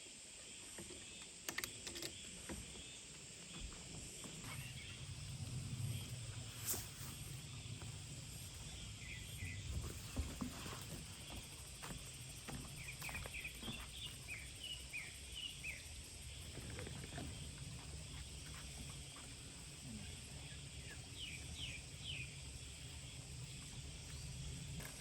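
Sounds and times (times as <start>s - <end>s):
steady low rumble: 4.0s - 10.4s.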